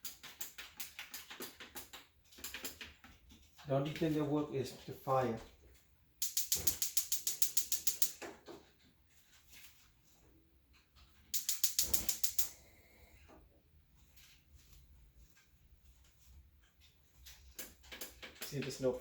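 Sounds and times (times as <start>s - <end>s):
gas burner igniter clicking: 6.2s - 8.2s, 11.3s - 12.6s.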